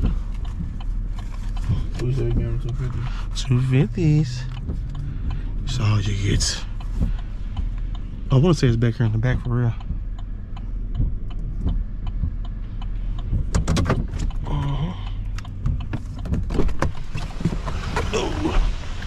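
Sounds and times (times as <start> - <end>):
clicks in the cab: 0.0 - 18.1
truck engine rumbling: 0.0 - 19.0.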